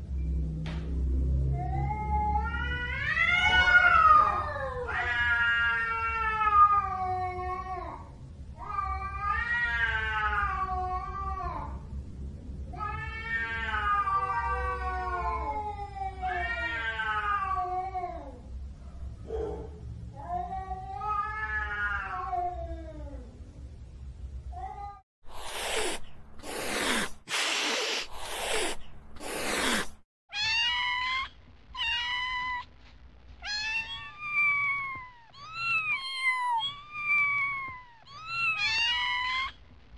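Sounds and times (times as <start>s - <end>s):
cat yowling: 1.7s - 7.8s, 24.7s - 32.7s, 33.4s - 39.6s.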